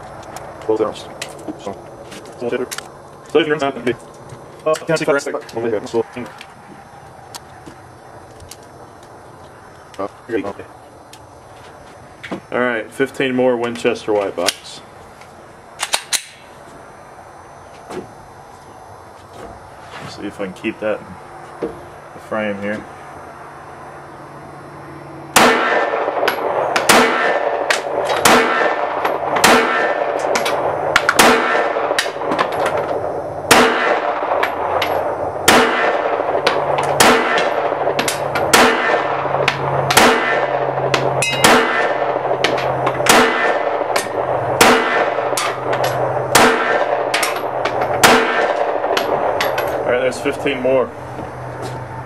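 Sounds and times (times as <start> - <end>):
pistol shots with ringing tail: 25.3 - 50.6.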